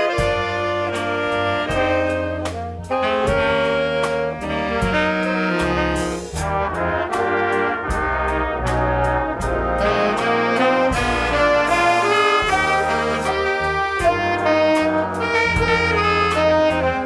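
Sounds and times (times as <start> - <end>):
band playing jazz ballad: 0.0 - 17.0
sharp percussion strokes: 5.6 - 16.9.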